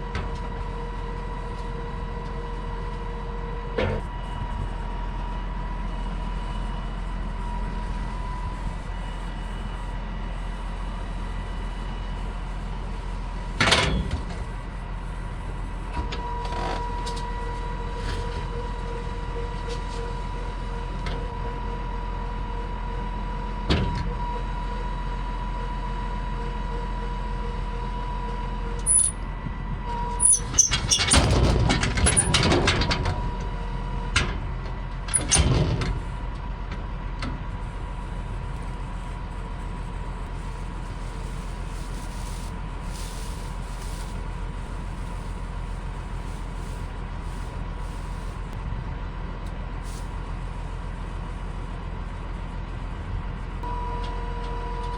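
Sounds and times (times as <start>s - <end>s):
clatter of loud bangs: 30.9s - 33.2s
vehicle engine running: 35.8s - 54.9s.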